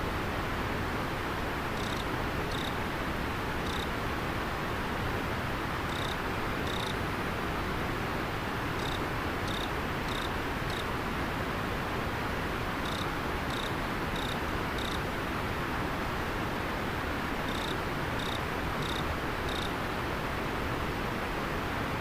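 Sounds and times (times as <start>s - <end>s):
insect short high chirps: 1.8s - 2.7s, 5.9s - 6.9s, 8.8s - 10.8s, 17.5s - 19.7s.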